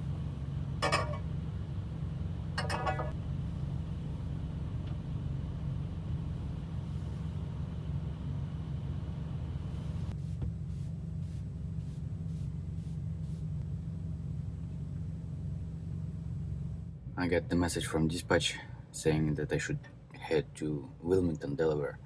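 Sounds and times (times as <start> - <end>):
truck diesel engine rumbling: 0.0 - 21.9.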